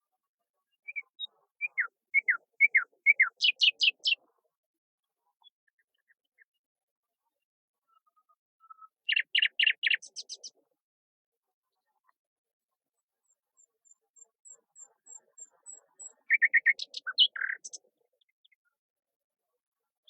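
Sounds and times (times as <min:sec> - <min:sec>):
songbirds chirping: 0:00.7 - 0:04.3, 0:07.9 - 0:10.6, 0:13.3 - 0:18.6.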